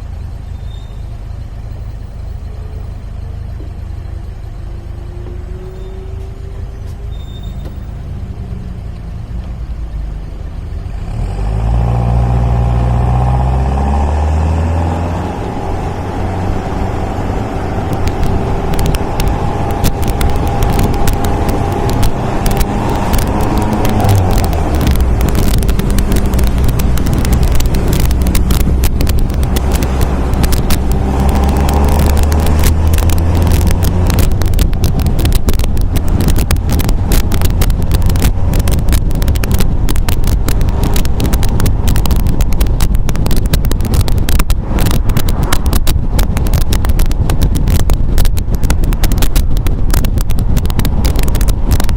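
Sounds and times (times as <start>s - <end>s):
car engine running: 0.0s - 11.2s, 12.0s - 51.9s
wind buffeting microphone: 12.3s - 51.9s.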